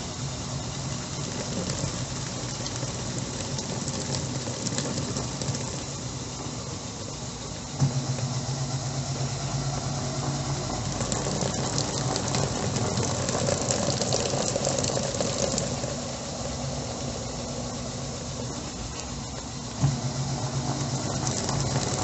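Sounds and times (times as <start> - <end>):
washing machine motor hum: 0.0 - 22.0
crackly splashing water: 0.8 - 6.3, 10.5 - 16.0, 20.6 - 22.0.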